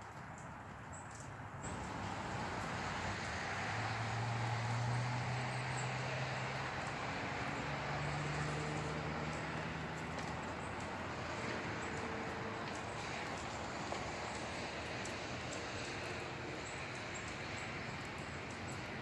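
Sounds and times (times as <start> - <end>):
distant passing vehicle engine: 1.6 - 19.0.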